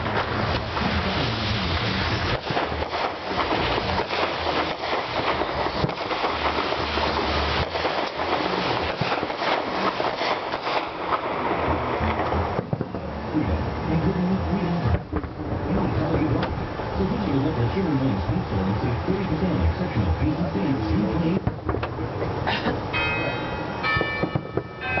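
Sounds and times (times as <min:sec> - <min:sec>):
fireworks crackling and popping: 0:00.0 - 0:25.0.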